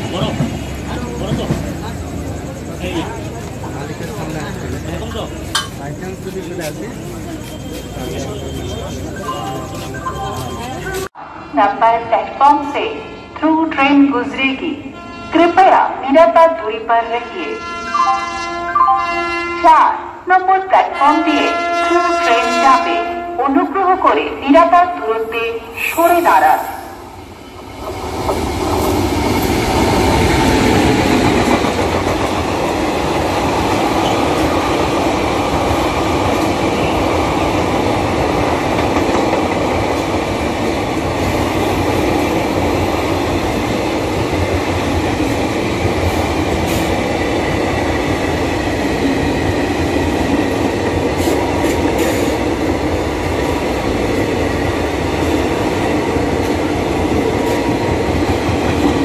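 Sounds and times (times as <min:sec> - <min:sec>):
train wheels on rails: 0:00.0 - 0:11.2, 0:23.6 - 0:59.0
express train passing at speed: 0:00.0 - 0:59.0.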